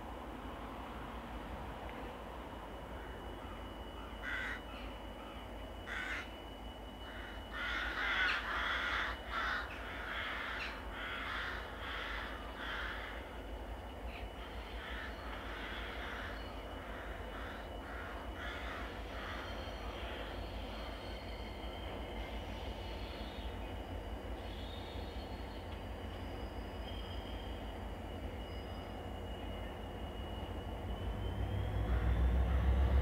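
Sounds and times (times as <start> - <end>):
crows cawing: 4.2 - 4.7, 5.9 - 6.3, 7.1 - 13.2, 14.8 - 19.5.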